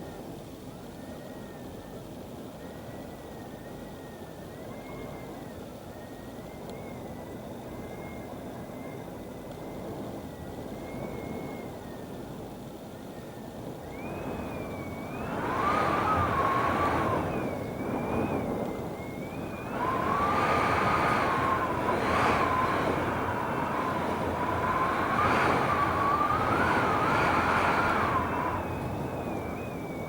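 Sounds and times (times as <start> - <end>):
wavering wind whistle: 2.6 - 30.0
strong gusting wind: 13.5 - 30.0.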